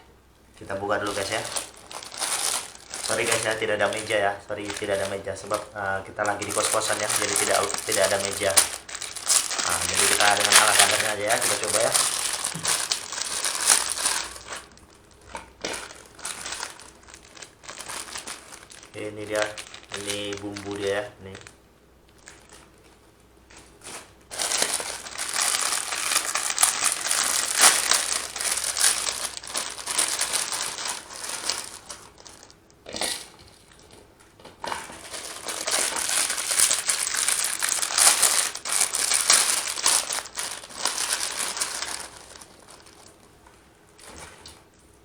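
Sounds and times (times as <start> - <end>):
plastic packets crinkling: 0.5 - 34.0, 34.6 - 44.8.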